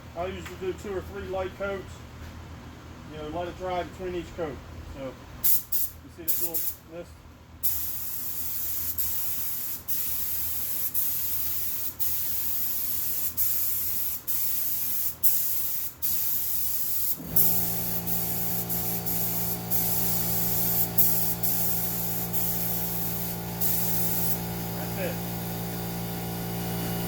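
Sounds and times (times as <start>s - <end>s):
spray gun hissing: 7.8s - 27.0s
motor hum: 17.2s - 27.0s.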